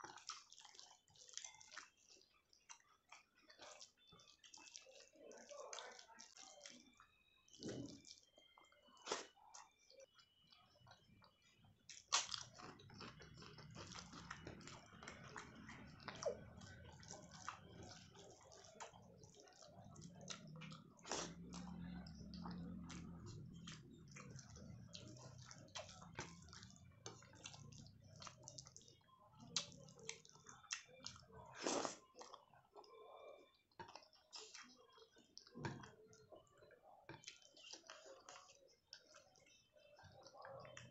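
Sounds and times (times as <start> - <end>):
person chewing food: 0.0 - 40.9
food crunches: 11.9 - 15.4.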